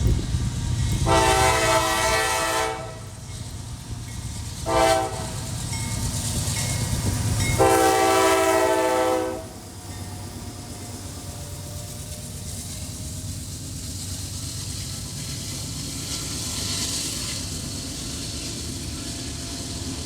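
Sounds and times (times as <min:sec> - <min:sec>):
train rumbling: 0:00.0 - 0:20.0
locomotive air horn blasts: 0:01.0 - 0:03.2, 0:04.6 - 0:05.5, 0:07.6 - 0:09.6.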